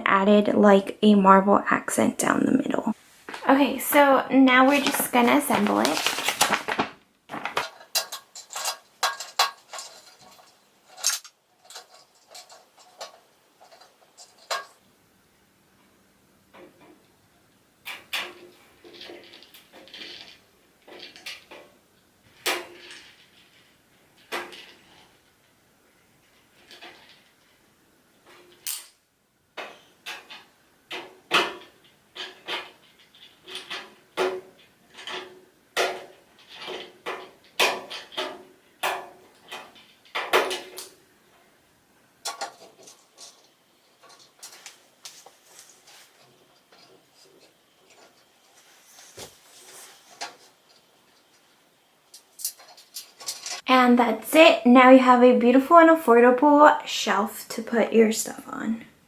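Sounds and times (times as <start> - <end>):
steel shelving parts clanking: 7.4 - 14.8, 17.9 - 25.4, 29.6 - 41.5, 42.2 - 53.7.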